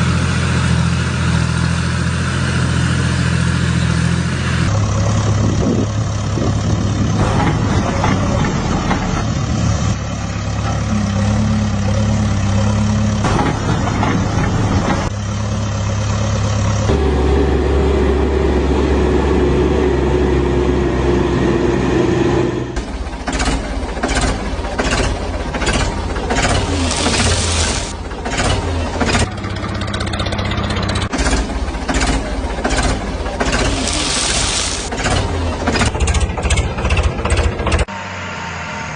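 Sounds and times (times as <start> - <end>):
tractor engine chugging: 22.8 - 37.9.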